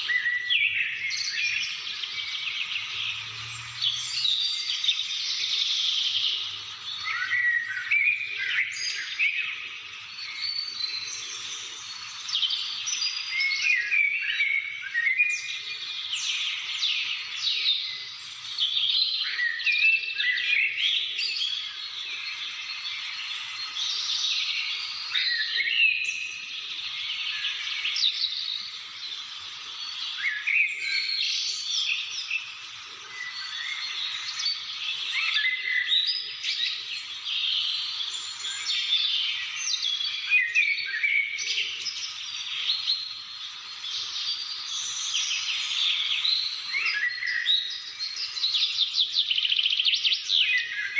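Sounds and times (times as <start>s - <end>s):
birds chirping and singing: 0.0s - 50.9s.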